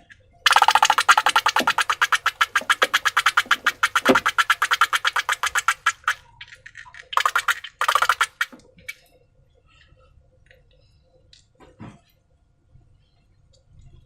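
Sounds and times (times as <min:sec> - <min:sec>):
slime squished sticky pops: 0:00.5 - 0:06.2.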